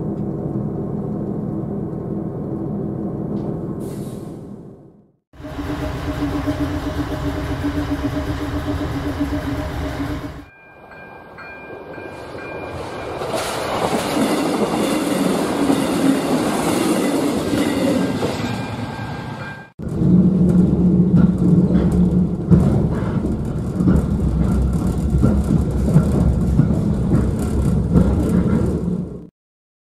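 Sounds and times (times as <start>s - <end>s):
rattle inside moving train: 0.0s - 4.7s, 5.4s - 10.5s, 12.7s - 29.3s
passing train noise: 0.0s - 29.3s
train hum on board: 0.0s - 29.3s
level crossing warning tone: 5.4s - 13.4s.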